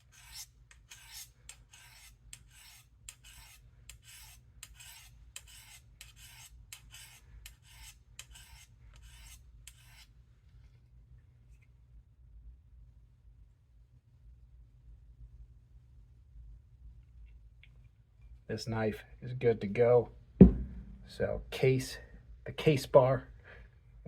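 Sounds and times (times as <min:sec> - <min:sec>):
knife scraping on ceramic rods: 0:00.0 - 0:10.1.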